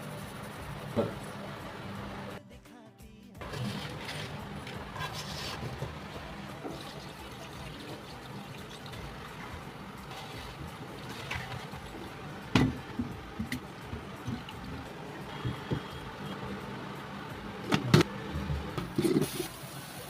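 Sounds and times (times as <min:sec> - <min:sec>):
liquid pouring and trickling: 0:03.4 - 0:17.7.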